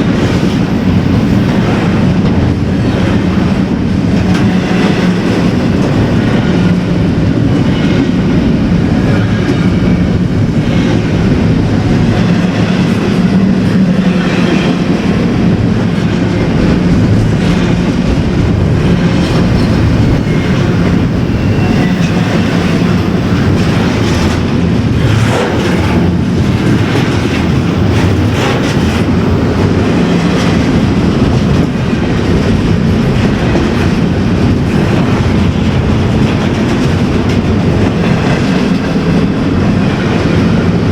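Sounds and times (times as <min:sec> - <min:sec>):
freight train rumbling past: 0:00.0 - 0:40.9
wheels clacking over track: 0:16.8 - 0:39.4.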